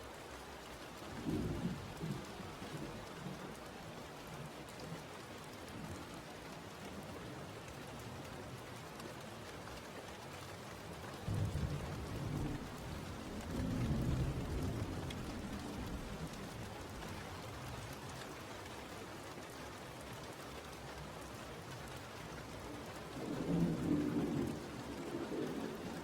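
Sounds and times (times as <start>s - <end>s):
steady rain falling: 0.0s - 26.0s
thunder rolling: 23.2s - 26.0s.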